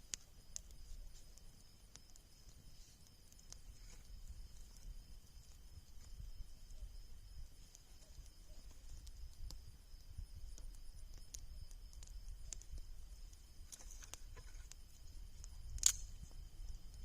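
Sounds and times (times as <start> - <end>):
bonfire crackling: 0.0 - 17.0
loud sharp crack: 15.8 - 16.1.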